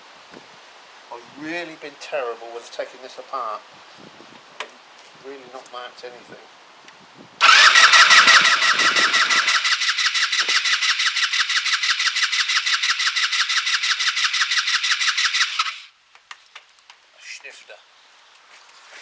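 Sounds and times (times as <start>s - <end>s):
scooter starter cranking engine: 7.4s - 15.9s.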